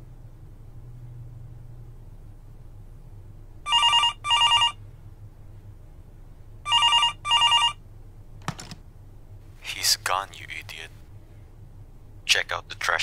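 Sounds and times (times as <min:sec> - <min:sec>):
telephone ringing: 0:03.7 - 0:04.8, 0:06.7 - 0:07.8.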